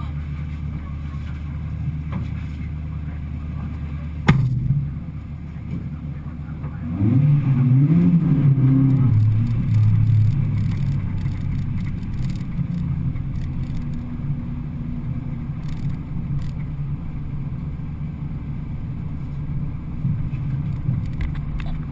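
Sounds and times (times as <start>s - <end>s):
car engine revving and running: 0.0s - 21.9s
faint scattered clicks: 8.9s - 14.1s, 15.6s - 16.7s, 20.6s - 21.9s.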